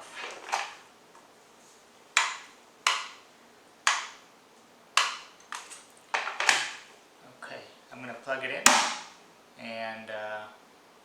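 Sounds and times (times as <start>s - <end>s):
kettle switch clicking: 2.2s - 3.1s, 3.9s - 4.2s, 5.0s - 5.3s.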